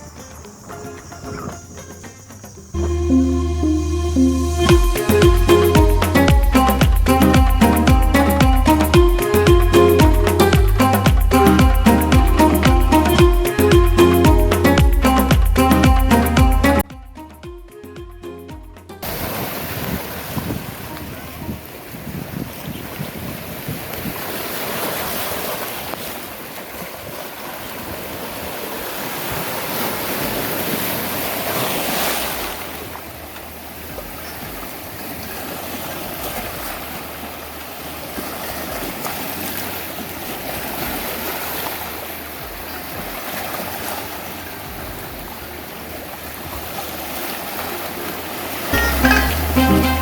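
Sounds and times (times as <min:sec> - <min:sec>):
sea waves washing: 0:00.0 - 0:16.9, 0:18.9 - 0:50.0
wind buffeting microphone: 0:19.0 - 0:25.9.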